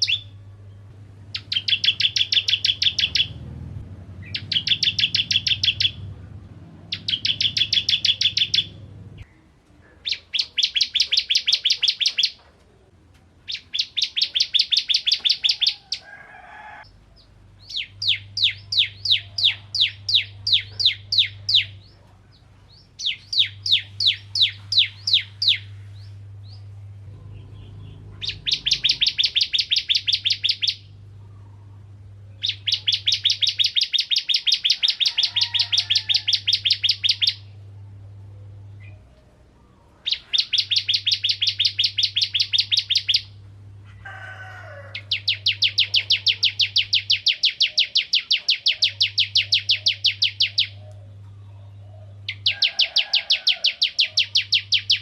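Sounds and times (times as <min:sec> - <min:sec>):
bird chattering song: 0:00.0 - 0:16.1, 0:16.9 - 0:37.6, 0:38.5 - 0:43.4, 0:44.9 - 0:55.0.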